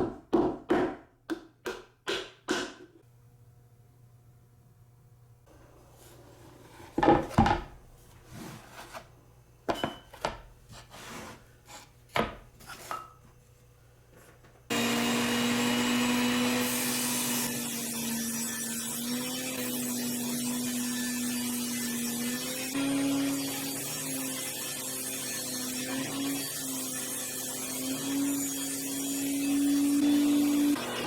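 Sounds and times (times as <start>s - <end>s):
power saw running: 14.7s - 31.0s.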